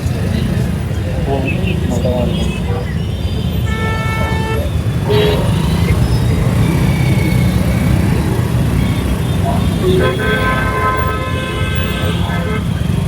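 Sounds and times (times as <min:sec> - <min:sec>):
road noise: 0:00.0 - 0:13.0
vehicle horn tooting: 0:03.2 - 0:06.0, 0:09.7 - 0:13.0.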